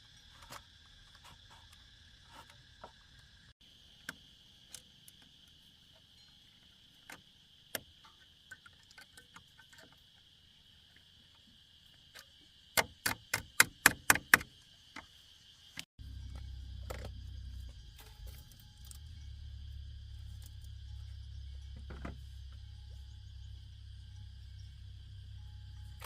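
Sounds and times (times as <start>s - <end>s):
high-pitched insect drone: 0.0s - 12.7s, 14.4s - 26.0s
low rumble: 16.0s - 26.0s.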